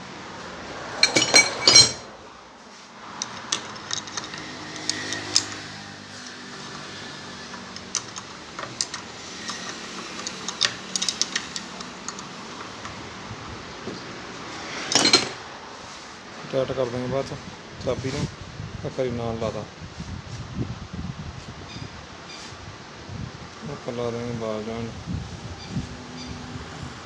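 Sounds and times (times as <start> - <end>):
metal tools clinking and clanking: 1.0 - 2.1, 3.2 - 6.4, 7.5 - 13.0, 14.9 - 15.4.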